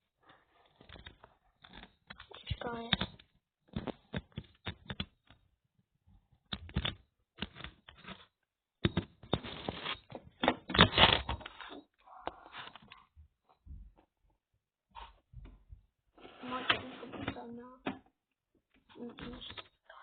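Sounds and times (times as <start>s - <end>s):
objects tapping and clicking: 0.8s - 5.5s, 6.4s - 14.2s.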